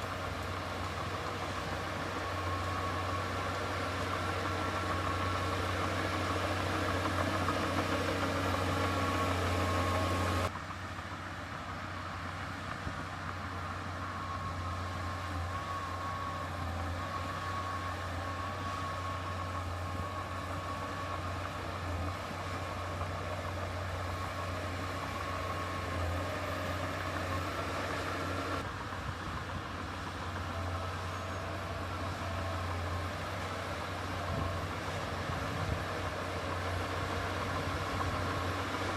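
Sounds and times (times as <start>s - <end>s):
thin whine: 0.0s - 10.6s, 13.5s - 28.8s
heavy diesel engine running: 0.0s - 38.9s.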